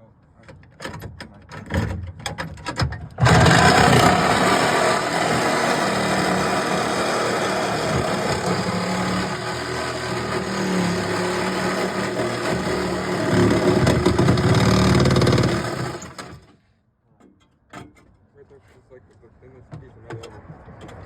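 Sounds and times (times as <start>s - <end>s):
power saw cutting sheet metal: 3.2s - 16.4s.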